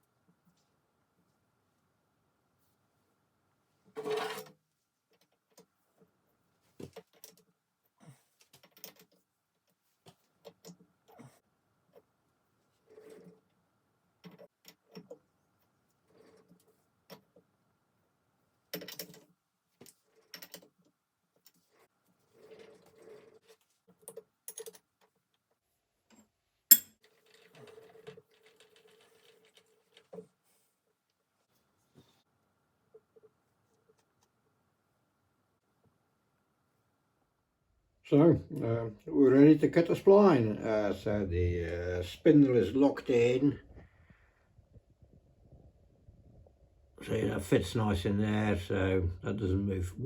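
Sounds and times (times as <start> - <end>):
metal tools clicking and knocking: 26.7 - 27.0
ringing metallic clink: 26.7 - 27.0.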